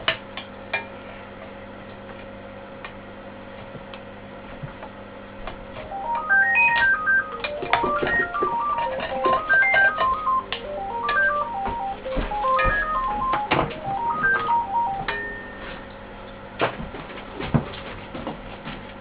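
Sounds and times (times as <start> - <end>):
electronic beeping melody: 5.9 - 16.2.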